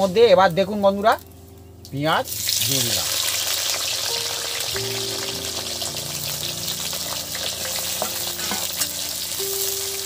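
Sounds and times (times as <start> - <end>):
onions sizzling in hot oil: 2.3 - 10.0.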